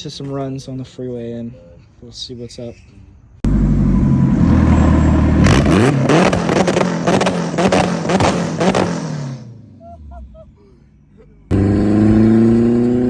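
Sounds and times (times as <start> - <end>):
car engine accelerating hard: 3.4 - 10.4, 11.4 - 13.0.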